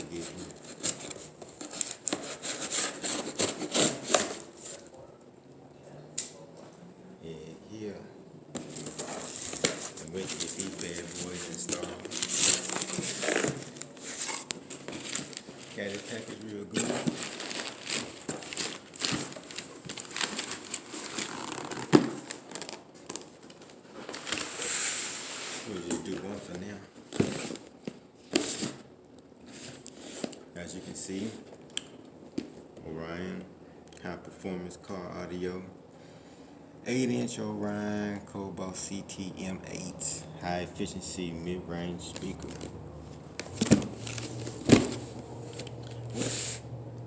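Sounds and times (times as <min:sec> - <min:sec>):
packaging crinkling and rustling: 0:00.0 - 0:04.9, 0:08.6 - 0:24.8, 0:42.0 - 0:46.6
blade sawing through cardboard: 0:01.8 - 0:04.4.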